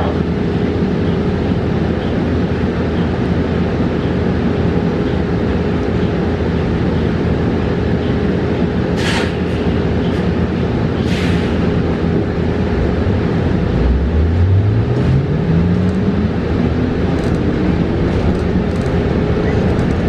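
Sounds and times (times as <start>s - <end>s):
bus road noise: 0.0s - 20.0s
constant hum: 0.0s - 20.0s
short hisses: 9.0s - 9.4s, 11.1s - 11.6s.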